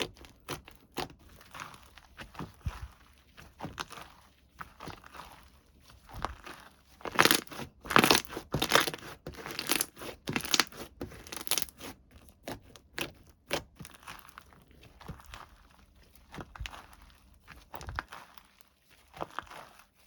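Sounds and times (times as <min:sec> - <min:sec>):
packaging crinkling and tearing: 0:07.1 - 0:11.7.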